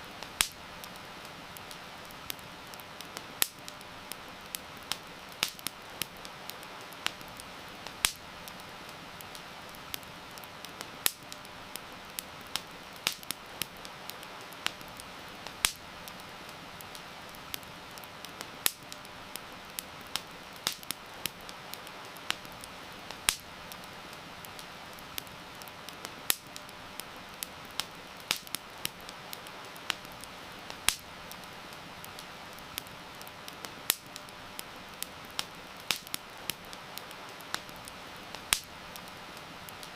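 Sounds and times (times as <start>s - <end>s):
campfire crackling and popping: 0.0s - 39.9s
rain hiss: 0.0s - 39.9s.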